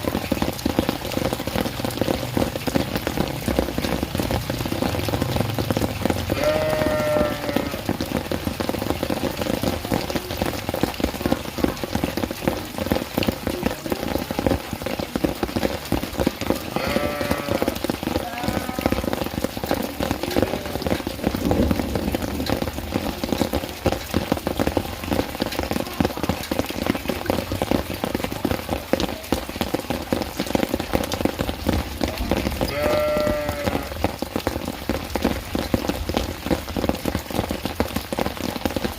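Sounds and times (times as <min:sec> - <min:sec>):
rain pattering and dripping: 0:00.0 - 0:38.9
goat bleating: 0:06.4 - 0:07.8, 0:16.7 - 0:19.0, 0:32.7 - 0:33.9.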